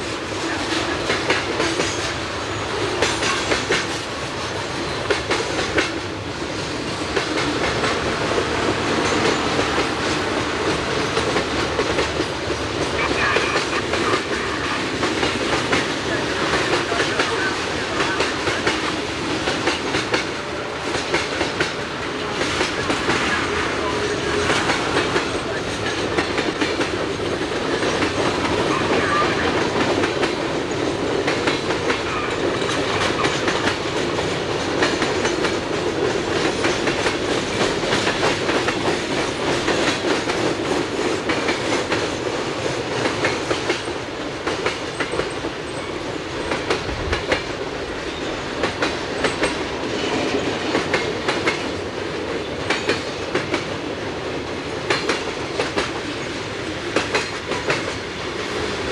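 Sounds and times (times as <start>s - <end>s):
train rolling rumble: 0.0s - 58.9s
train wheels clicking over rail joints: 0.0s - 58.9s.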